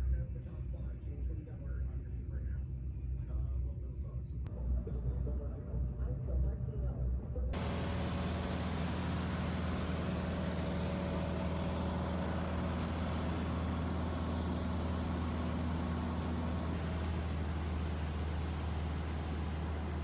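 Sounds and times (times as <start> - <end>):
even hiss: 7.6 - 20.0
vehicle engine drone: 7.6 - 20.0.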